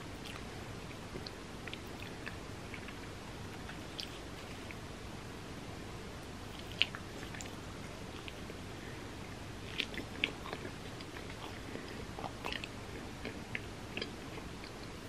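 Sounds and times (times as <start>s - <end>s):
biting and chewing pizza crust: 9.6s - 15.0s.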